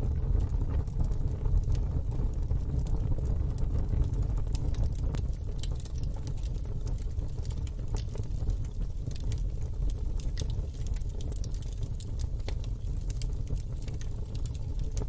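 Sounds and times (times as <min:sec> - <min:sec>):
fire crackling and popping: 0:00.0 - 0:15.0
low fire rumble: 0:00.0 - 0:15.0.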